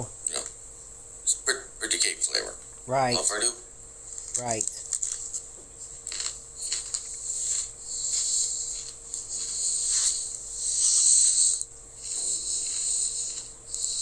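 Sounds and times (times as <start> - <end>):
person crunching a cookie: 6.0 - 10.0.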